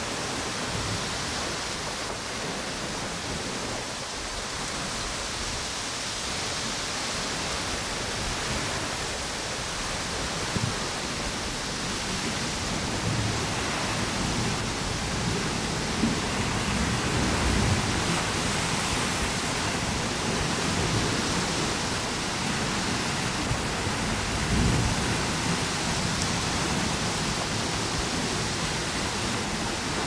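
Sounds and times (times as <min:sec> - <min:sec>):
ocean surf: 0:00.0 - 0:30.0
wind: 0:00.0 - 0:30.0.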